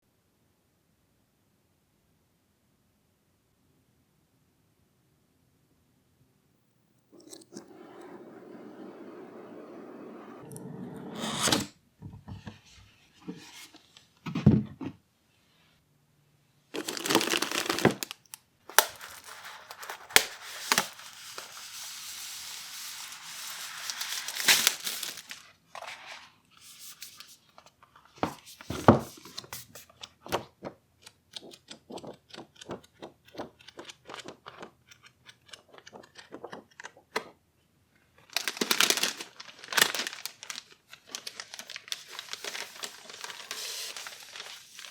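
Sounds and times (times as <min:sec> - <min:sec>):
plastic packaging crinkling and tearing: 0:16.8 - 0:26.0, 0:38.2 - 0:44.9.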